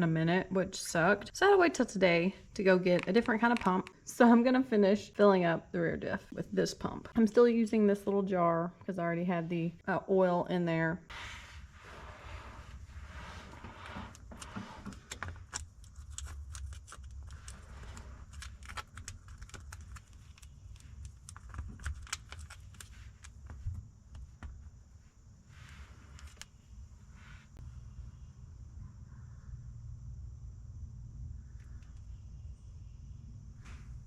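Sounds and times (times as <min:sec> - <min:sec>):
steady low rumble: 0:24.8 - 0:34.0.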